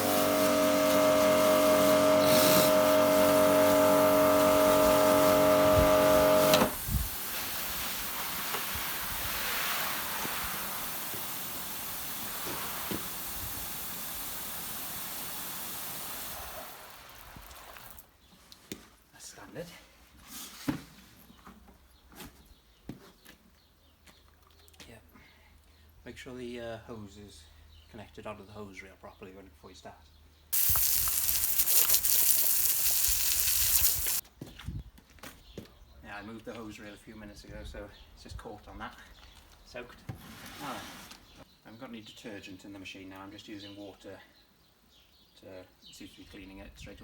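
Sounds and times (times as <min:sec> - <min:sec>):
pressure washer spraying water: 0:00.0 - 0:17.2, 0:30.6 - 0:34.2.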